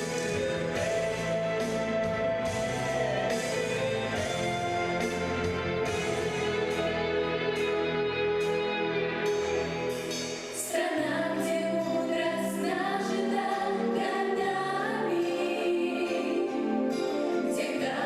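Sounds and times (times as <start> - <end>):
instrumental accompaniment: 0.0 - 10.8
children singing in unison: 10.7 - 18.0.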